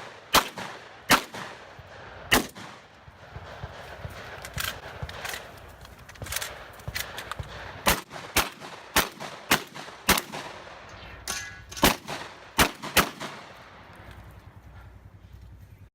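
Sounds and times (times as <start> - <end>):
gunshots in quick succession: 0.0 - 5.5, 6.5 - 10.8, 11.8 - 13.6.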